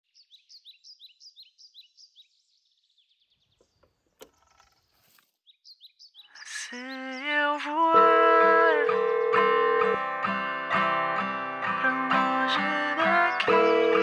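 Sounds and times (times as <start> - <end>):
bird chirping: 0.0 - 7.8, 12.3 - 14.0
brief rustle: 3.6 - 5.4.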